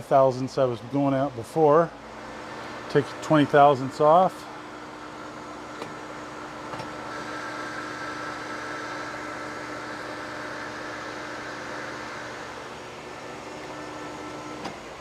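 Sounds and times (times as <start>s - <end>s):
lathe motor hum: 0.0s - 15.0s
lathe tool cutting metal: 6.9s - 15.0s.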